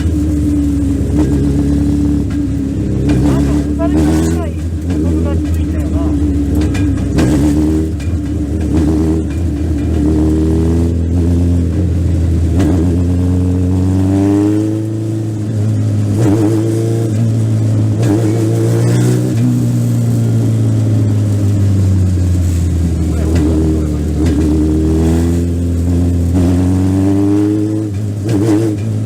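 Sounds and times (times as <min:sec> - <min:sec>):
race car engine revving: 0:00.0 - 0:29.0.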